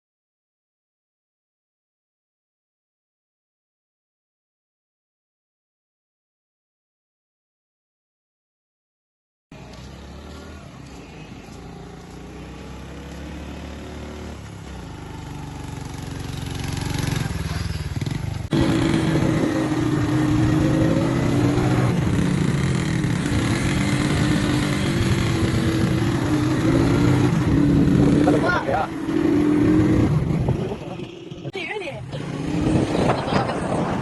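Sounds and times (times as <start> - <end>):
vehicle engine running: 9.6 - 13.8.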